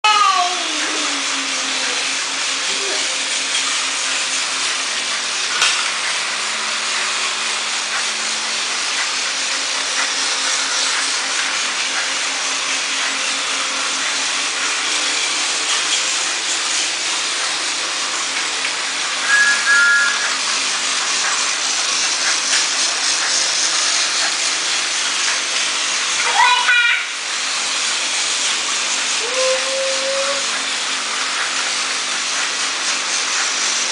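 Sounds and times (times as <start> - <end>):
toy train motors whirring: 0.0 - 33.9
two-note tone: 19.2 - 20.4.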